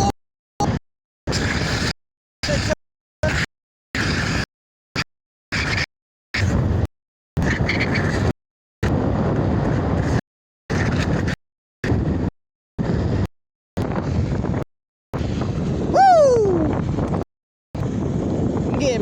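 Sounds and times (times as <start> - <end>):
heavy wind over microphone: 0.0 - 19.0.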